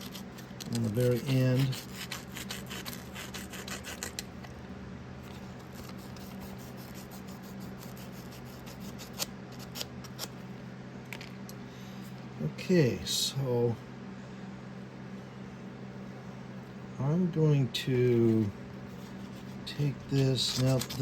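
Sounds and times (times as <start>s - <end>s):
sandpaper scratching: 0.0s - 4.2s, 5.7s - 10.3s, 18.3s - 21.0s.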